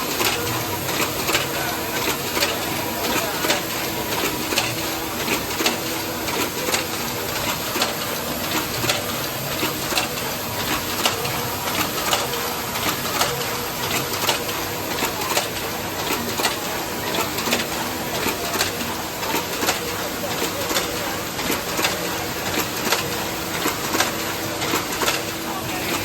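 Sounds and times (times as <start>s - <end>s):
machine clicks: 0.0s - 26.0s
welding machine running: 0.0s - 26.0s.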